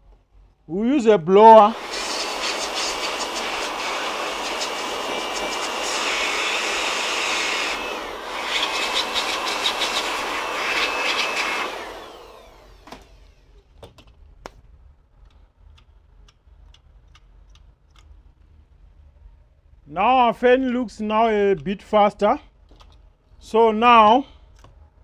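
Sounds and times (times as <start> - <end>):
air blower rushing with high whine: 1.4 - 13.3.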